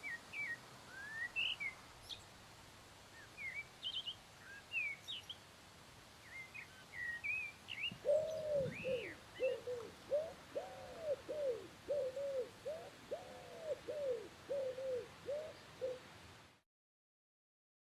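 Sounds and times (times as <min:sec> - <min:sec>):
bird chirping: 0:06.3 - 0:16.0
bird cooing: 0:07.9 - 0:16.1.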